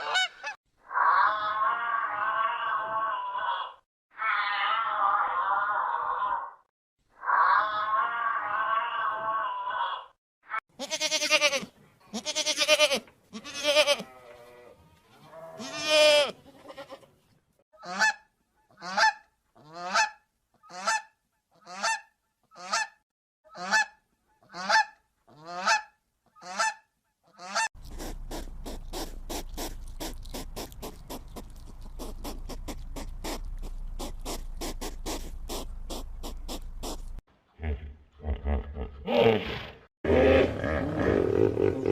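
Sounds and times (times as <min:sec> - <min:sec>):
geese honking: 0:00.0 - 0:00.6.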